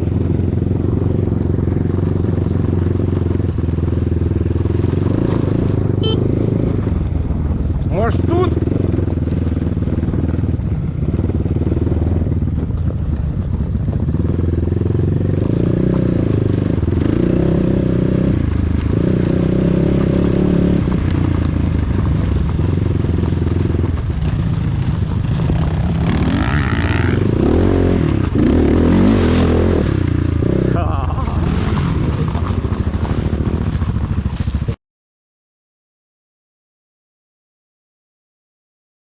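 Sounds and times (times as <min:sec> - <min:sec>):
motorcycle engine running: 0:00.0 - 0:34.8.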